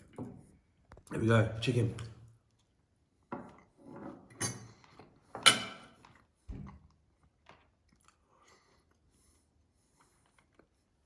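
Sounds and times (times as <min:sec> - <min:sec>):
sharp cutlery clacks: 0:05.4 - 0:06.0.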